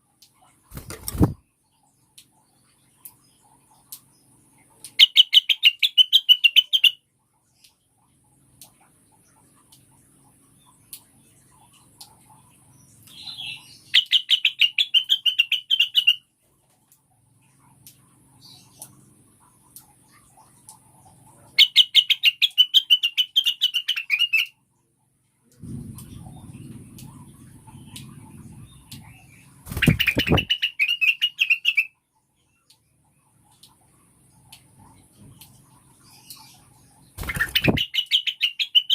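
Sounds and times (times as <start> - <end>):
bird chirping: 0.7 - 8.2, 9.1 - 16.2, 18.3 - 24.6, 25.6 - 38.9
low background rumble: 24.6 - 30.8
bird sharp chirps: 25.7 - 32.0, 37.2 - 38.9.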